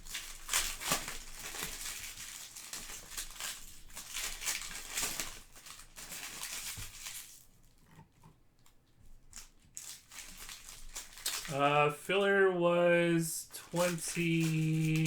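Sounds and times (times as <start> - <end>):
foil wrappers crinkling and tearing: 0.0 - 7.8, 9.3 - 11.5, 13.7 - 15.0.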